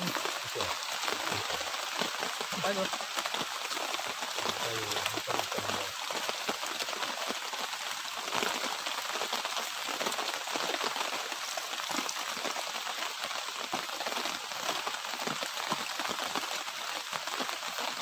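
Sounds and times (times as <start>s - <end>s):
light drizzle pattering: 0.0s - 18.0s.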